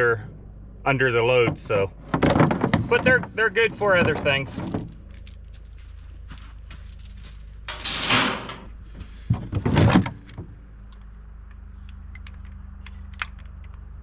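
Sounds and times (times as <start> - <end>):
low machine hum: 0.0 - 14.0
chains rattling and clanking: 2.0 - 8.7, 9.7 - 10.7, 11.8 - 14.0.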